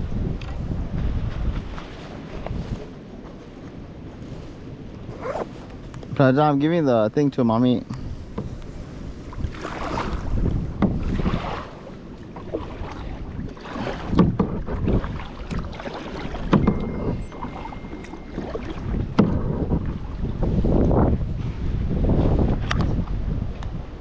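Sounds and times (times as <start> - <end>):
wind buffeting microphone: 0.0 - 24.0
kayak splashing: 0.6 - 6.2, 8.0 - 21.8
sharp knocks: 16.5 - 18.2, 19.1 - 19.4.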